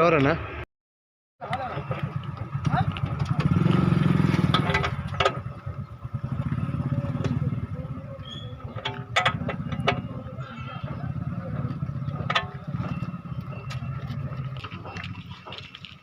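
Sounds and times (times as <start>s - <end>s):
tractor diesel engine running: 1.4s - 16.0s
metallic clicks and clanks: 8.6s - 10.0s, 12.1s - 16.0s.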